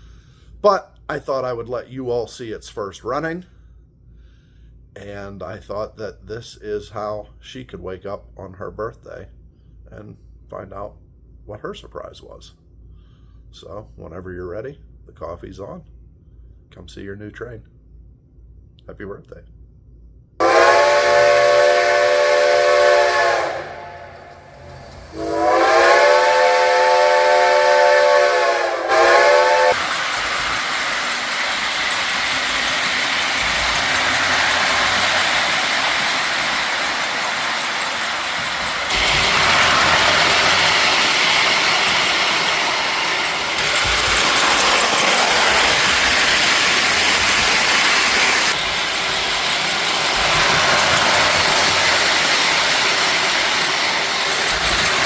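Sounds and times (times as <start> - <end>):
model train whistle: 20.4 - 29.8
steam hiss and running noise: 20.4 - 55.0.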